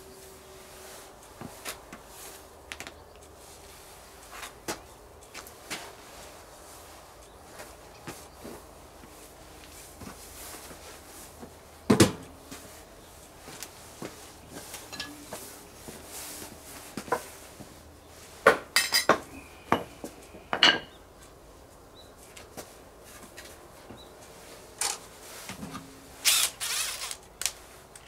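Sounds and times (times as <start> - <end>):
metal cookware clattering: 14.9 - 15.3.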